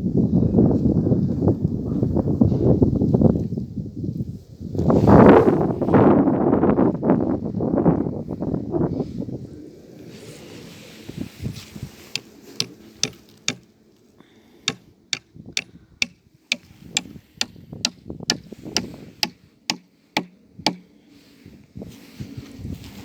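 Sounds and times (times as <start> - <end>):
sharp knocks: 12.6 - 13.6, 16.0 - 17.2, 17.9 - 20.9.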